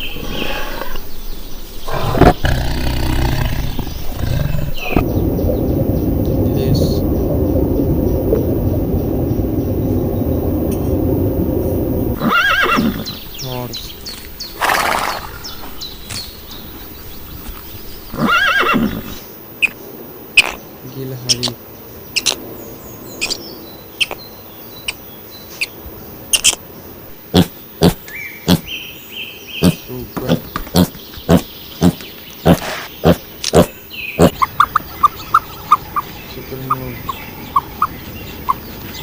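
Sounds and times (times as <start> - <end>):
loud low rumble: 0.0 - 12.2
squirrel chirping: 21.3 - 22.4, 23.1 - 26.6, 29.6 - 39.0.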